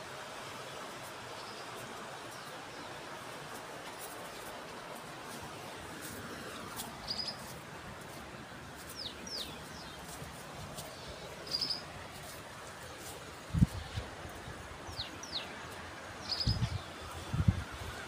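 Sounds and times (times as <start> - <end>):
birds chirping: 3.8 - 18.0.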